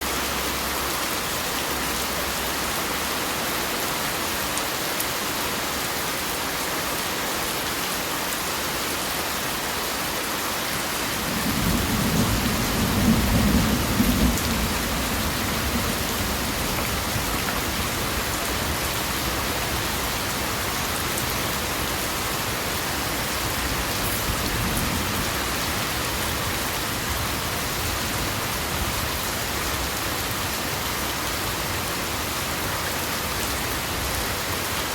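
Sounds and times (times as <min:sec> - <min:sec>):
steady rain falling: 0:00.0 - 0:34.9
thunder rolling: 0:11.3 - 0:18.0.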